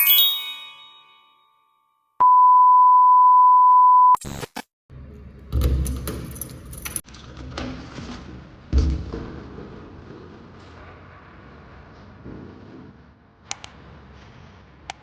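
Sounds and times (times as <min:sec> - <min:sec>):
chime ringing: 0:00.0 - 0:01.7
high electronic beep: 0:02.2 - 0:04.2.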